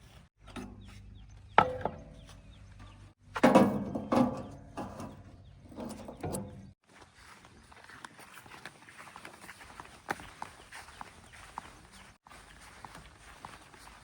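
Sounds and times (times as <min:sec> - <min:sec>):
metal clanks and knocks: 0:00.4 - 0:06.8.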